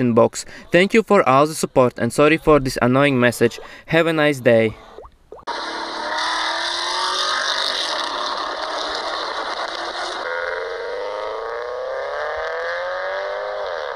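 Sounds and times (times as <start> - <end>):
motorcycle engine revving: 5.5 - 13.9.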